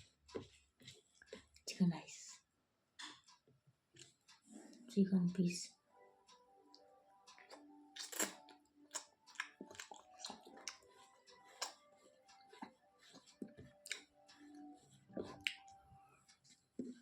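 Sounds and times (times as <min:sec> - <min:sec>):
faint background music: 0:00.0 - 0:17.0
eating clicks and smacks: 0:07.3 - 0:14.3.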